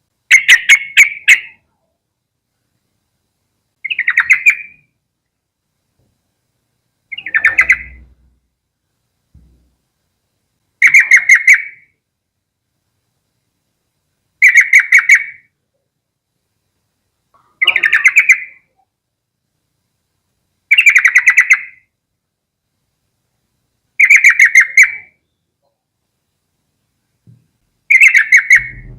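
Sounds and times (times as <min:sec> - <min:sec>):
bird singing bubbly chattering song: 0:03.8 - 0:04.8, 0:07.1 - 0:08.1, 0:17.4 - 0:18.7, 0:20.7 - 0:21.8, 0:27.9 - 0:28.9.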